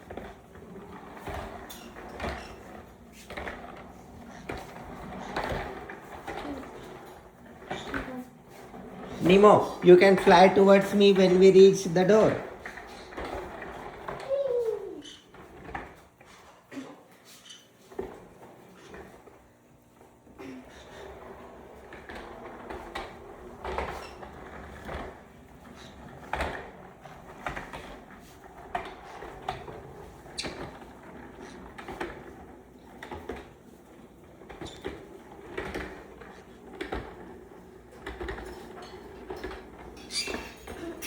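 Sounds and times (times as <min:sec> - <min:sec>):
motorised toy vehicle humming: 0:11.2 - 0:16.0.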